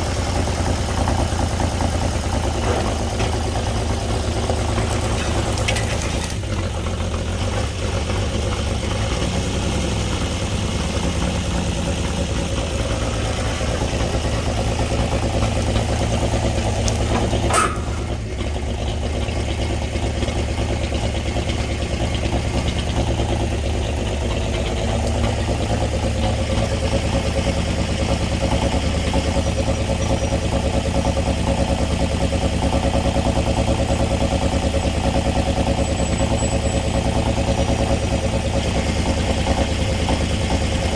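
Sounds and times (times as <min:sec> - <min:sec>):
truck engine idling: 0:00.0 - 0:40.9
sharp metal clank: 0:17.1 - 0:18.4.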